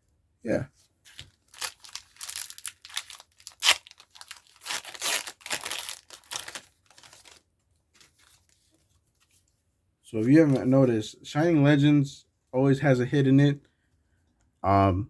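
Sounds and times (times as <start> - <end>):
foil wrapper crinkling and tearing: 1.1 - 7.5.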